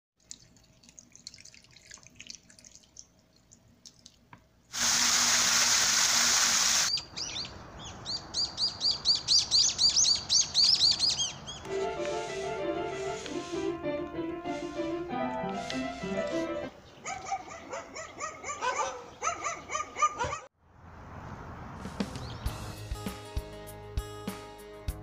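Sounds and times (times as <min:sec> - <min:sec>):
water jet spraying: 0:04.7 - 0:06.9, 0:11.7 - 0:16.5
bird chirping: 0:06.9 - 0:11.7
piano music: 0:11.7 - 0:16.8.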